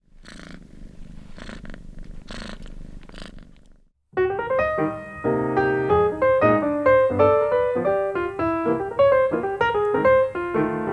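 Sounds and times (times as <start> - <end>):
kitten purring: 0.0 - 3.9
piano music: 4.1 - 10.9.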